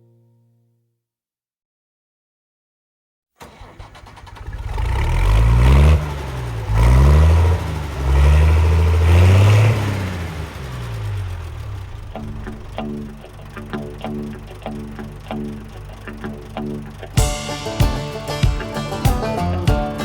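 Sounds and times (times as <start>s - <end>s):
engine starting and revving: 3.4s - 17.2s.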